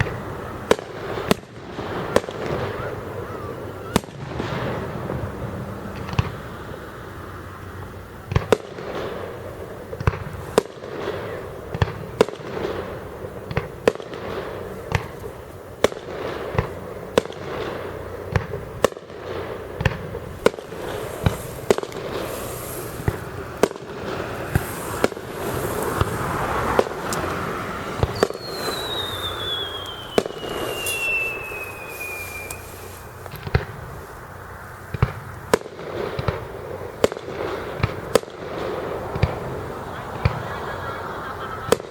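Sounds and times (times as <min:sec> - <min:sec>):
falling firework whistle: 0:00.0 - 0:05.0, 0:20.4 - 0:34.0
fireworks bangs: 0:00.0 - 0:40.8, 0:41.4 - 0:41.9
fireworks crackling: 0:00.0 - 0:41.9.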